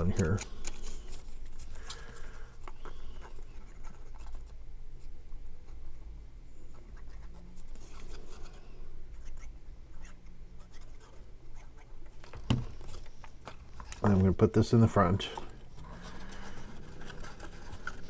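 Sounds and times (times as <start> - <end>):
soft clicks of paper handling: 0.0 - 4.6, 9.2 - 18.0
scratching and rubbing on cardstock: 0.0 - 5.1, 6.7 - 18.0.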